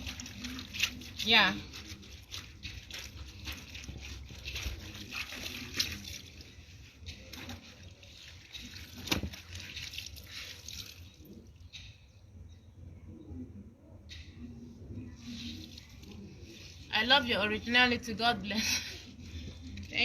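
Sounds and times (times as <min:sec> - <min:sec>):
wet fabric sloshing and squelching: 0:00.0 - 0:11.4.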